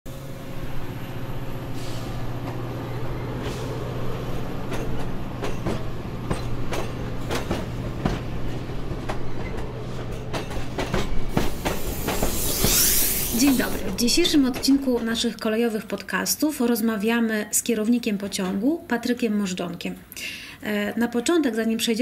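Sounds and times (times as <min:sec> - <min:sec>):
train low hum: 0:00.1 - 0:16.4
train wheels clacking on rails: 0:03.3 - 0:15.5.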